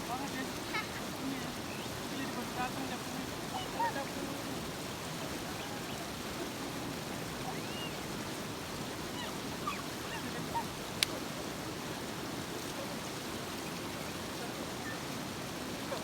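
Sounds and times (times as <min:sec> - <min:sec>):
river flowing over rocks: 0:00.0 - 0:16.0.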